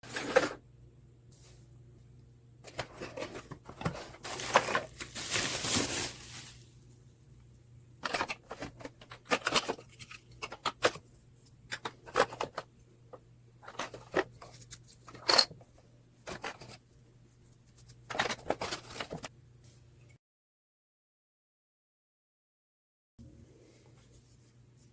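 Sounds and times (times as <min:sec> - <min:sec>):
faint steady hum: 0:00.0 - 0:20.2
clicks and scrapes of parts: 0:02.6 - 0:04.9, 0:08.0 - 0:12.7, 0:13.6 - 0:16.8, 0:17.7 - 0:19.3
packaging rustling and tearing: 0:02.7 - 0:06.8.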